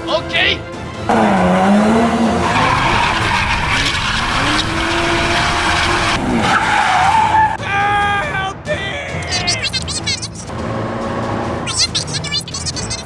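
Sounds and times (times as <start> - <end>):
car engine revving: 0.8 - 7.6, 10.4 - 11.7.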